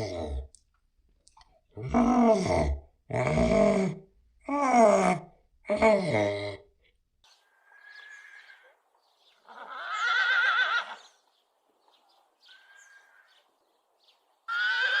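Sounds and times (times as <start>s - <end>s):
horse whinnying: 9.5s - 11.2s, 14.5s - 15.0s.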